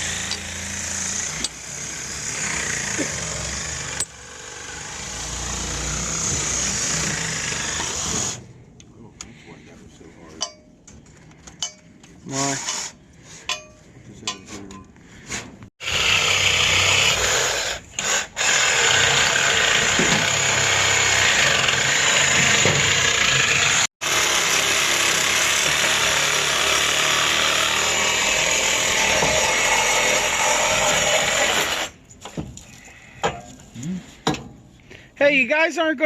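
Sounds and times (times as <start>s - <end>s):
power tool running: 0.0s - 8.4s, 15.8s - 31.9s.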